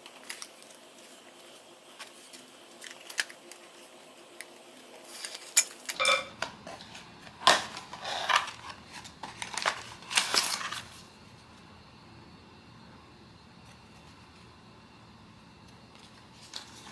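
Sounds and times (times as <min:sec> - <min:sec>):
packaging rustling and crinkling: 0:00.0 - 0:11.4, 0:15.9 - 0:16.9.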